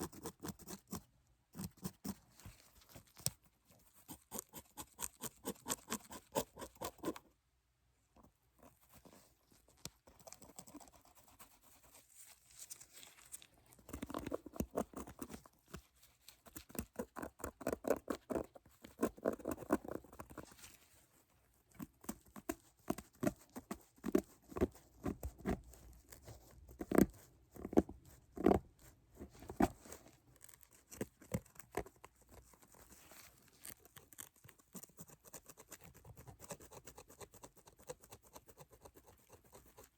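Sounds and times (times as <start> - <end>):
rustling: 8.5 - 35.9.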